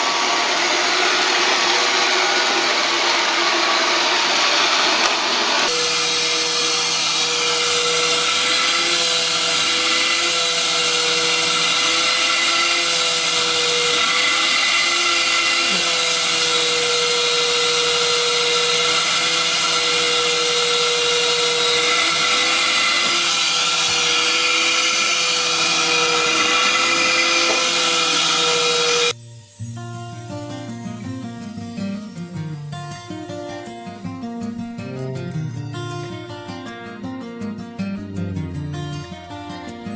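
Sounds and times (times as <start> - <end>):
vacuum cleaner running: 0.0 - 29.2.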